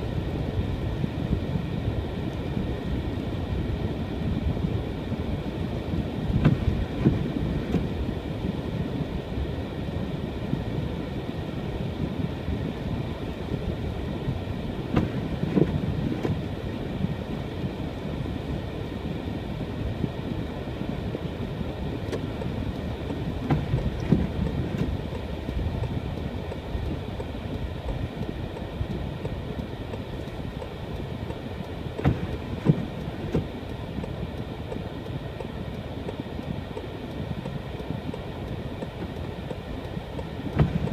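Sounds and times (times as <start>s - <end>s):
car engine and tyres rumbling: 0.0s - 40.9s
short knocks and thumps: 23.1s - 25.2s, 32.0s - 33.5s, 40.5s - 40.9s.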